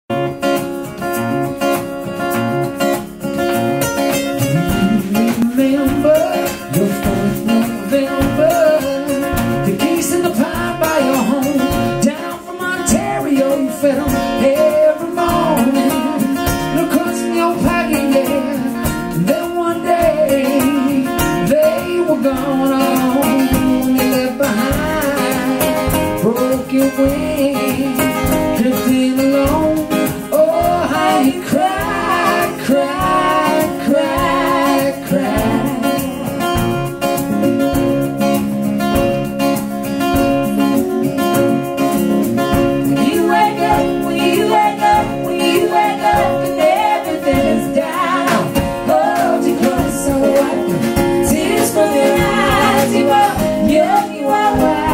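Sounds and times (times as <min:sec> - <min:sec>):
acoustic guitar playing: 0:00.1 - 0:54.9
person singing: 0:04.3 - 0:37.2, 0:42.8 - 0:54.9.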